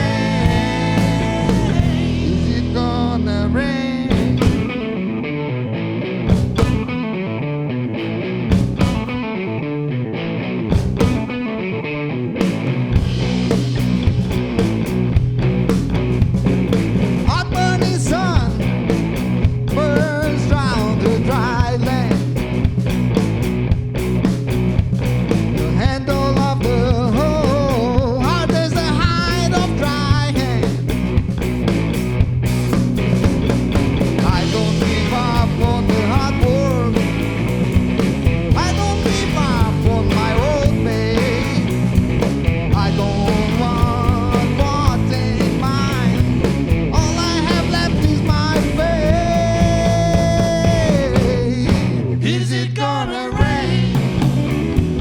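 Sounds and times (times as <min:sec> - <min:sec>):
lead guitar bending notes: 0:00.0 - 0:13.5
live rock band playing: 0:00.0 - 0:52.3, 0:53.2 - 0:55.0.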